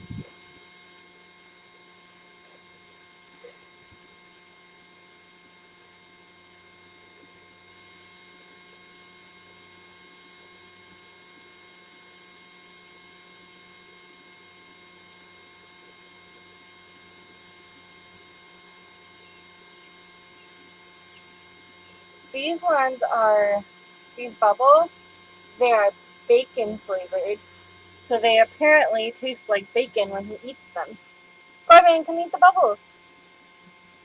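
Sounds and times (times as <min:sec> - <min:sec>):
small electric fan motor hum: 0:00.0 - 0:34.0.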